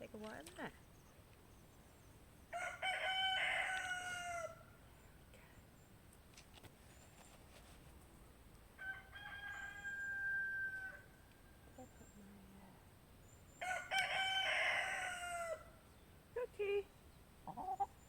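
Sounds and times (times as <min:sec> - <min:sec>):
rooster crowing: 0:02.5 - 0:04.7, 0:08.8 - 0:11.7, 0:13.6 - 0:15.8.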